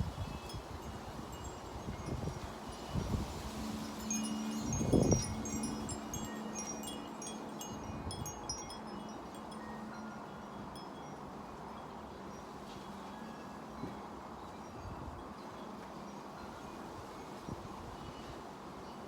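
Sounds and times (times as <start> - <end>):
wind buffeting microphone: 0.0 - 8.8
wind chimes ringing: 0.1 - 19.0.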